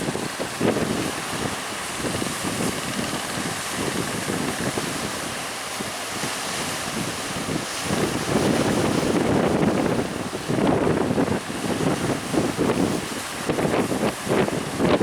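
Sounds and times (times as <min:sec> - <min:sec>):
rough sea waves: 0:00.0 - 0:15.0
wind buffeting microphone: 0:00.0 - 0:15.0.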